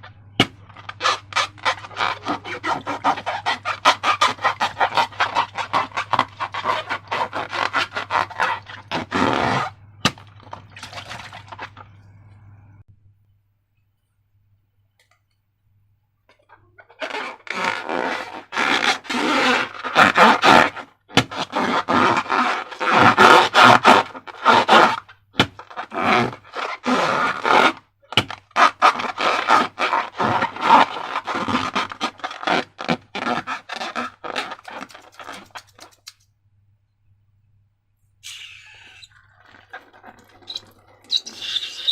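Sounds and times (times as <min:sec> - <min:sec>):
rubber balloons scraping and squeaking: 0:00.4 - 0:11.8, 0:16.8 - 0:36.0, 0:38.2 - 0:41.9.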